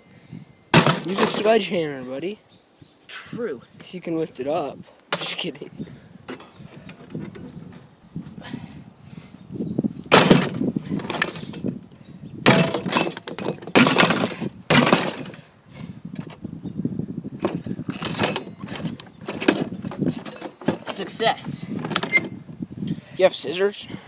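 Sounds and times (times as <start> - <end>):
breaking and rattling: 0.8 - 1.6, 10.1 - 11.6, 12.4 - 15.4, 17.4 - 22.2
heavy blows smashing fridge: 0.8 - 1.6, 10.1 - 11.6, 12.4 - 15.4, 17.4 - 22.4.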